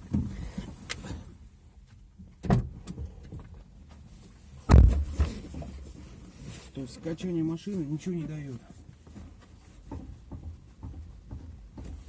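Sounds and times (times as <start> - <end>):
dull knocks from car body: 4.6 - 5.8.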